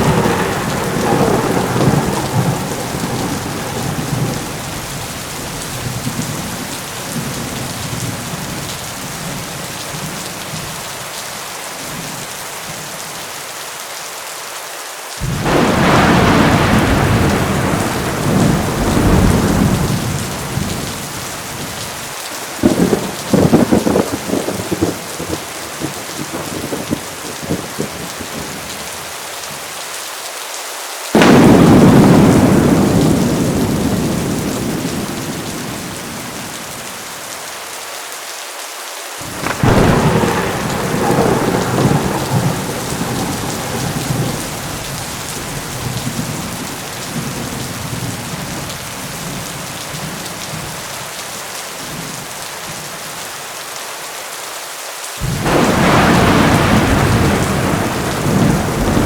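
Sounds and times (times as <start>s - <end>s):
thunderclaps: 0.0s - 9.4s, 15.2s - 28.9s, 31.2s - 37.1s, 39.2s - 50.8s, 55.2s - 59.0s
heavy rain: 0.0s - 59.0s.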